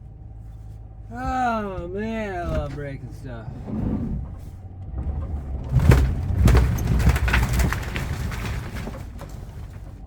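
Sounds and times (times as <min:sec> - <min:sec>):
truck engine running: 0:00.0 - 0:10.0
wooden framing cracking and crashing: 0:04.9 - 0:10.0.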